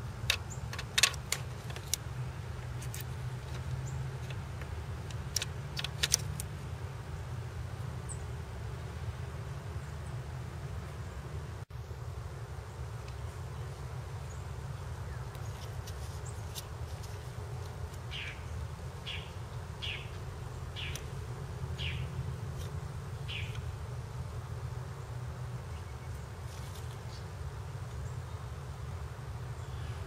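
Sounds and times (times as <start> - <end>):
small bird chirping: 18.0 - 23.7.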